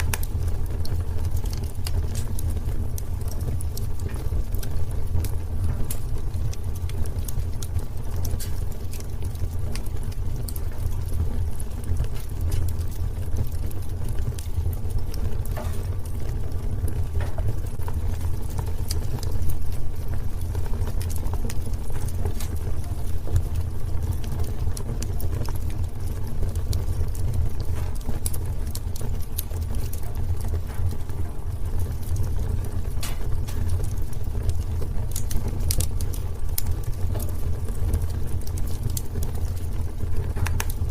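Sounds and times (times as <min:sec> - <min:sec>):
fire crackling and popping: 0:00.0 - 0:40.9
low rumble of flames: 0:00.0 - 0:40.9.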